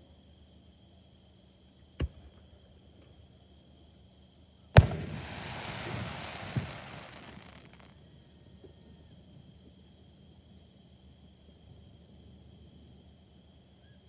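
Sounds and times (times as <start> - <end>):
hissing rumbling tail: 4.8 - 7.8
fireworks bangs: 4.8 - 7.9
insects trilling: 5.0 - 7.8.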